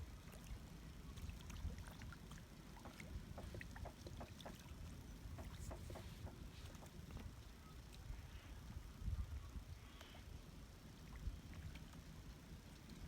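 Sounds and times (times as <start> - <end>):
water plinks and splashes: 0.0 - 8.2
wind rumble on microphone: 0.0 - 13.0.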